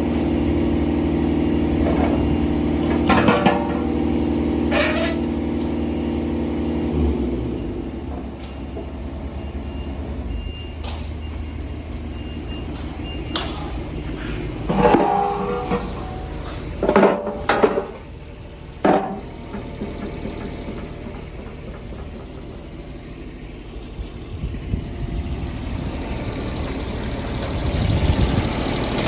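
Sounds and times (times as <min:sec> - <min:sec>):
diesel engine running: 0:00.0 - 0:29.0
machine knocks and clanks: 0:14.7 - 0:24.0.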